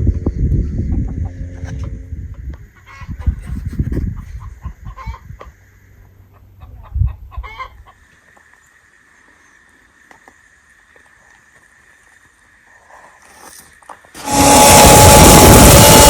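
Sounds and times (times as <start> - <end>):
chickens clucking: 6.3 - 8.0.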